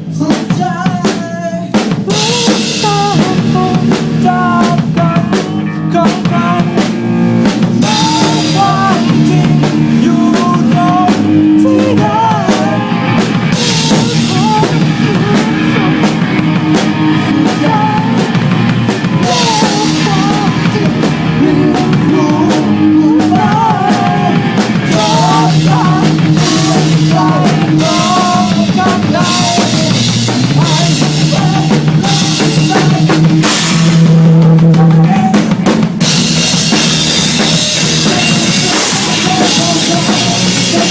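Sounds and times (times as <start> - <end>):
bass and guitar notes: 0.0 - 40.9
drum kit with cymbals: 0.0 - 40.9.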